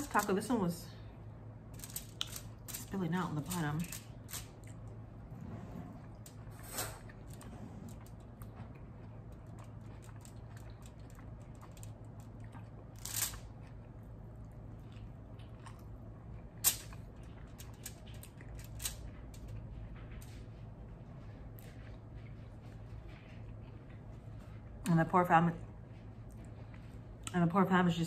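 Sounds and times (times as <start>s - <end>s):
steady low hum: 0.0s - 28.0s
chewing and wet mouth sounds: 4.0s - 5.3s, 6.0s - 25.0s, 25.6s - 27.5s.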